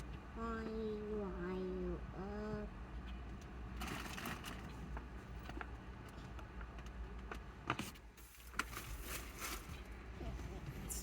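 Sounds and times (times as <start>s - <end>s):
rustling of wipes and tissues: 7.8s - 10.1s.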